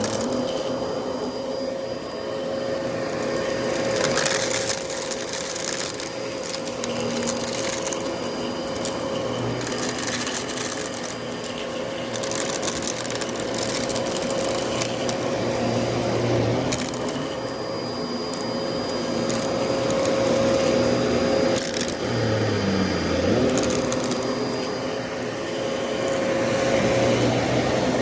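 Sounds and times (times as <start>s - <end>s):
brushroll crackling on debris: 0.0s - 0.7s, 3.4s - 17.6s, 23.2s - 24.8s
upright vacuum whining: 0.0s - 28.0s.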